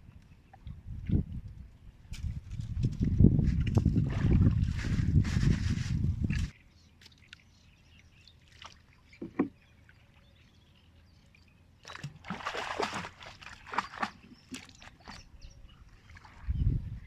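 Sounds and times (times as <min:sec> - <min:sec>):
water splashing and sloshing: 0:00.5 - 0:10.4, 0:11.3 - 0:17.0
sharp knocks on boat: 0:09.2 - 0:09.6.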